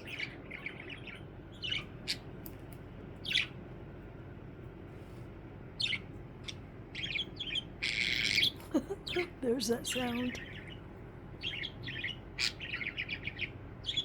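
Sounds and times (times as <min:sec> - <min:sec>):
budgie chirping: 0:05.8 - 0:14.0.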